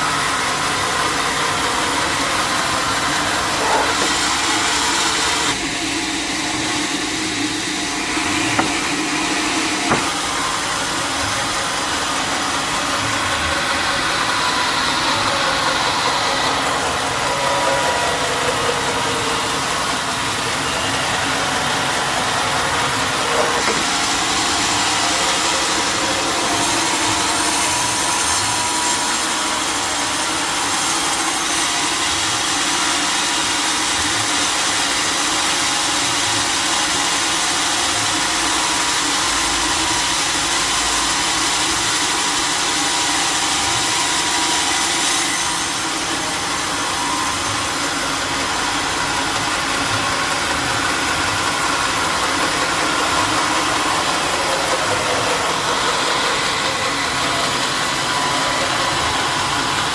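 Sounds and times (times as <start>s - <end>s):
sawmill machinery whining: 0.0s - 59.9s
brief knock: 8.5s - 9.0s, 9.8s - 10.2s.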